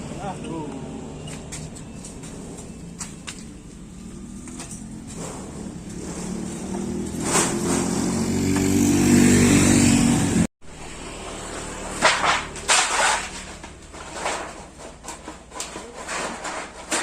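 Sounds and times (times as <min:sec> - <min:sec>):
quieter engine sound: 0:00.0 - 0:15.2
motorcycle engine revving: 0:02.0 - 0:13.2.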